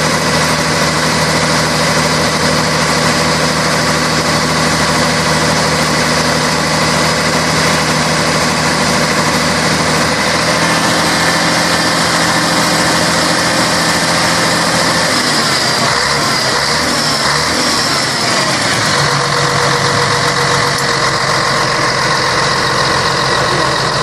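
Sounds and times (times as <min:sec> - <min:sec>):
bus diesel engine running: 0:00.0 - 0:24.0.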